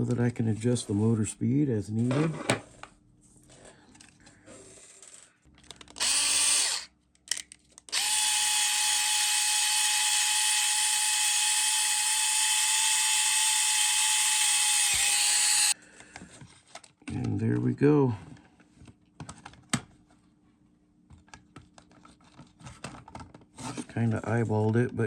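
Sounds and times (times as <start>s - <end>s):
power drill whining: 5.9s - 6.9s, 7.9s - 15.8s.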